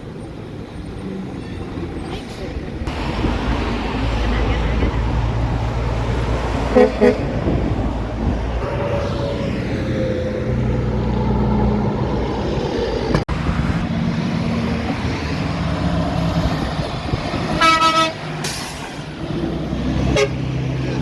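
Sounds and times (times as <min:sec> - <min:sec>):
truck horn toot: 0:06.7 - 0:07.3, 0:08.6 - 0:09.4, 0:17.5 - 0:18.3, 0:20.0 - 0:20.5.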